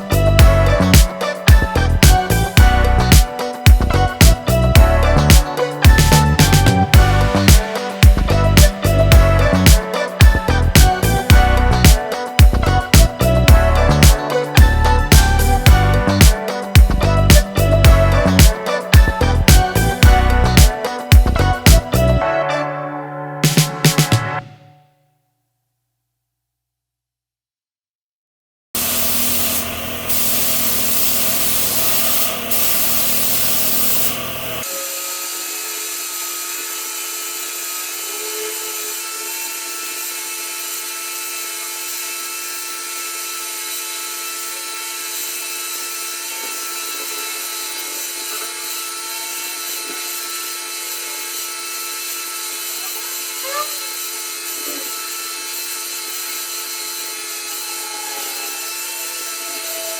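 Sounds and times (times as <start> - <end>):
power tool grinding: 0.0 - 22.3, 28.8 - 59.9.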